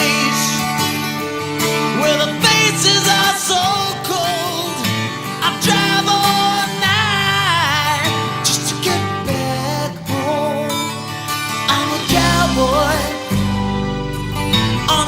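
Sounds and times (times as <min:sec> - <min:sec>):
acoustic guitar: 0:00.0 - 0:15.0
country song: 0:00.0 - 0:15.0
person singing: 0:01.8 - 0:13.6.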